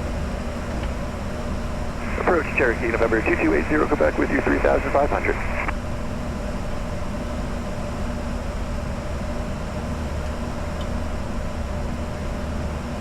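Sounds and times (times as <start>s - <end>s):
jet cockpit airflow and engine hum: 0.0s - 13.0s
faint steady tones: 1.7s - 5.7s.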